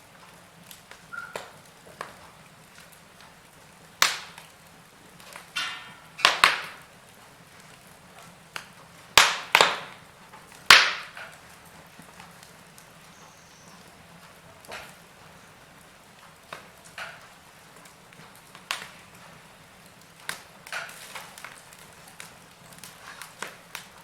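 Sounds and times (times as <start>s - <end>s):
burning logs popping: 0.0s - 24.0s
wood fire crackling: 0.0s - 24.0s.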